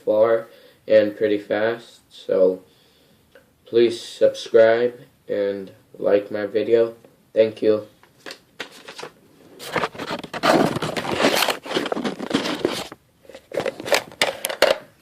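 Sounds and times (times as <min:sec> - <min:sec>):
rustling and scraping handling: 0:08.0 - 0:14.8.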